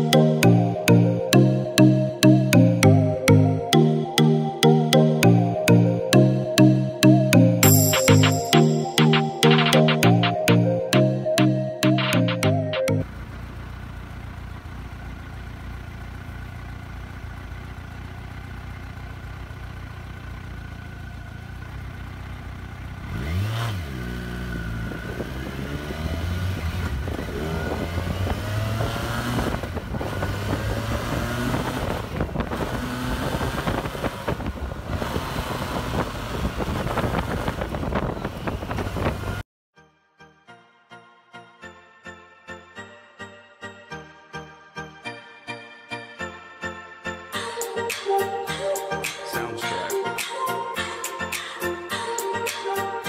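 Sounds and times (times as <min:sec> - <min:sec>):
motorcycle engine accelerating: 0:13.0 - 0:39.4.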